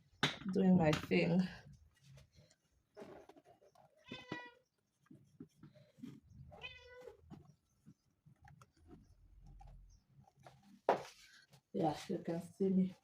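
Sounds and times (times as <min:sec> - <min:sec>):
cat meowing: 0:06.5 - 0:07.2.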